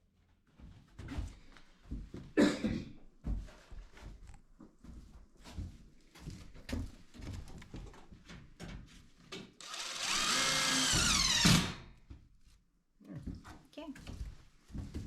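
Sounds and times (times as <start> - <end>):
power drill running: 9.6 - 11.8.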